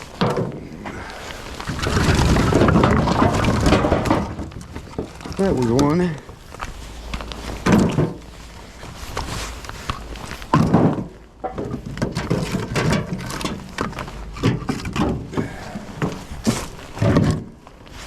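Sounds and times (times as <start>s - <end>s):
heavy wood thuds: 0.0s - 6.3s, 7.5s - 8.3s, 10.5s - 17.6s
firewood knocking together: 0.0s - 6.6s, 7.6s - 8.3s, 9.9s - 17.6s.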